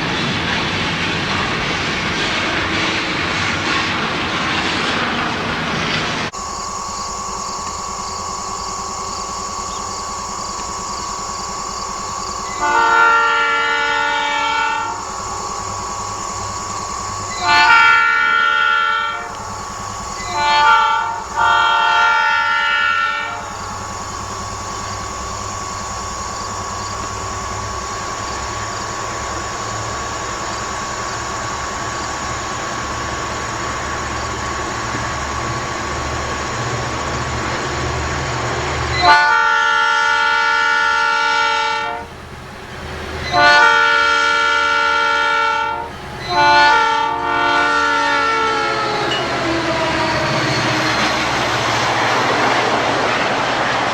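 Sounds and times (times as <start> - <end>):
train rumbling past: 0.0 - 53.9
locomotive air horn: 8.7 - 29.2, 37.6 - 42.4, 43.1 - 52.2.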